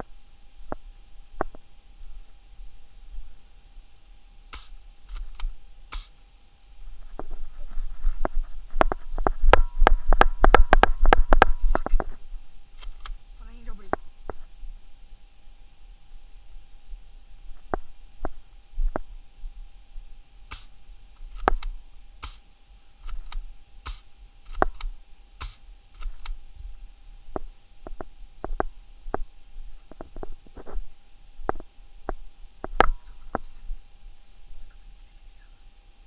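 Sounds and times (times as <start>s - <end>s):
faint high hum: 0.0s - 36.0s
sharp clicks and taps: 4.5s - 6.1s, 20.5s - 22.4s, 23.0s - 26.4s.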